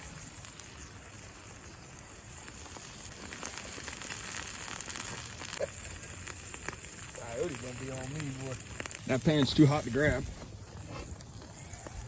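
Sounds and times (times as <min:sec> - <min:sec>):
crackling pops: 0:00.0 - 0:12.0
steak sizzling in hot pan: 0:00.0 - 0:12.0.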